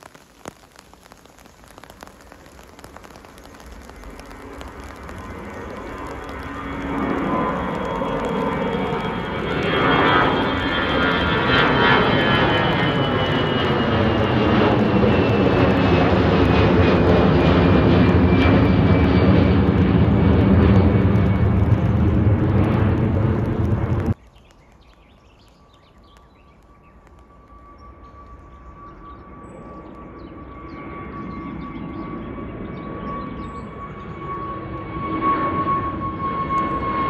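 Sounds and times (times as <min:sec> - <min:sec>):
high engine whine: 0:00.0 - 0:24.2
aircraft engines at takeoff: 0:00.0 - 0:37.0.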